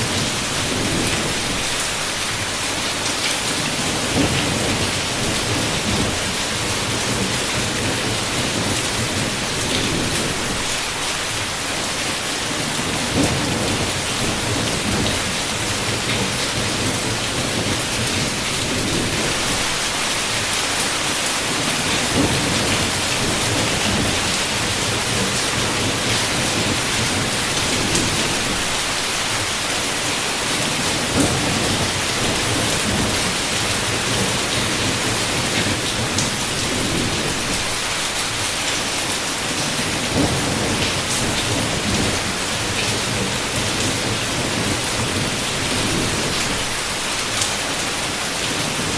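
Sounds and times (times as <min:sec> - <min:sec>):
heavy rain falling: 0:00.0 - 0:48.9
thunder rumbling: 0:39.8 - 0:46.9.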